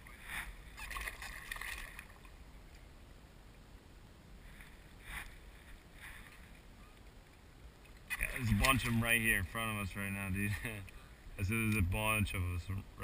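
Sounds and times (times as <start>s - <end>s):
water splashing and lapping: 0.0s - 2.4s.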